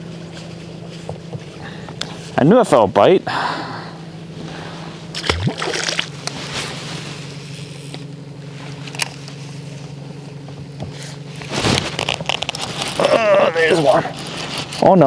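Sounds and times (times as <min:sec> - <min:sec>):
boat motor humming: 0:00.0 - 0:15.0
knocks and rustles of gear: 0:10.9 - 0:13.1.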